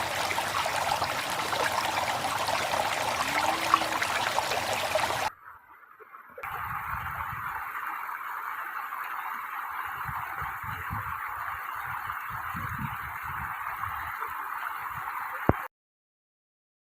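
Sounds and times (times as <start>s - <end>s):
river water rushing: 0.0s - 5.3s.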